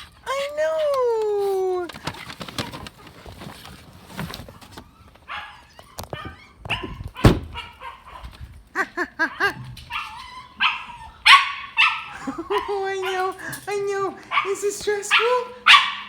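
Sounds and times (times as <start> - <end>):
dog whining and yipping: 4.6 - 8.3, 9.2 - 13.4.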